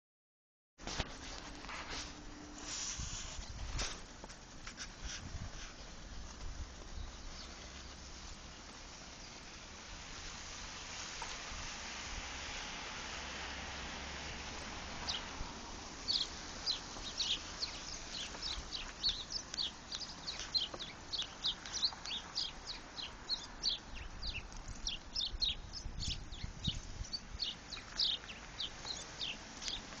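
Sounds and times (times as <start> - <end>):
light steady hiss: 0.9 - 30.0
small birds chirping: 4.7 - 9.7, 14.6 - 30.0.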